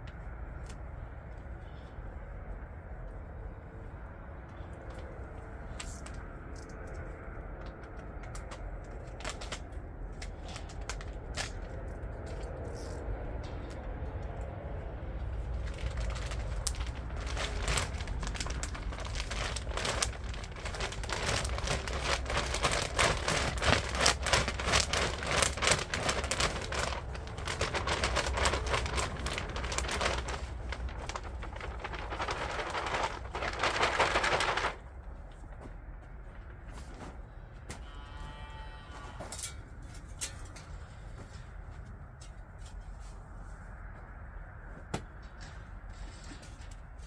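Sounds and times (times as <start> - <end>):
steady low rumble: 0.0 - 37.8
small hard pieces crackling: 15.4 - 34.8.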